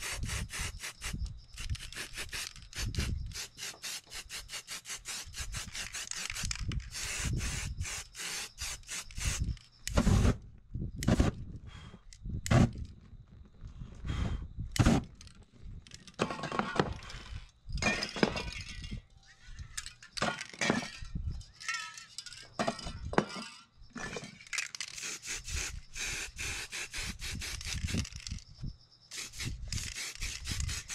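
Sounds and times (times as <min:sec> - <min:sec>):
spray paint hiss: 0:00.0 - 0:10.4, 0:24.8 - 0:28.4, 0:29.1 - 0:30.9.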